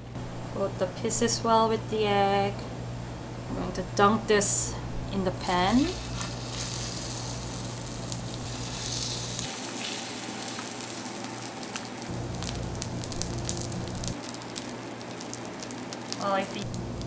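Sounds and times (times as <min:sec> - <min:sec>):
fish frying on a griddle: 0:05.7 - 0:17.0.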